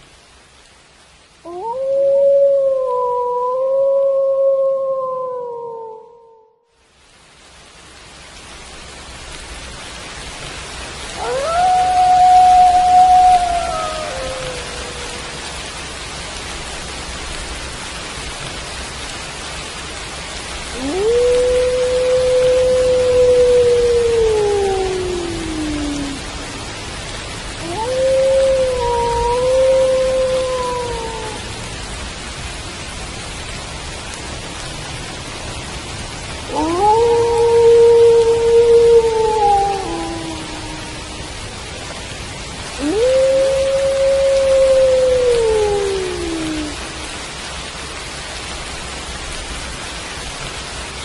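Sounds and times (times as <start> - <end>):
steady rain: 0.0 - 51.0
wolf howling: 1.5 - 6.6, 11.2 - 15.5, 20.8 - 26.6, 27.6 - 31.5, 36.5 - 41.4, 42.8 - 47.2.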